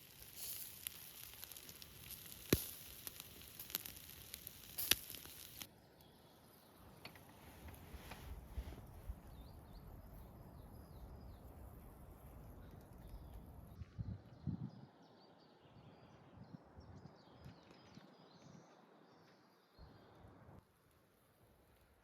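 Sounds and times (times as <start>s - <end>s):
crackling and snapping: 0.0s - 5.7s, 11.5s - 13.8s
high hiss: 0.0s - 5.7s.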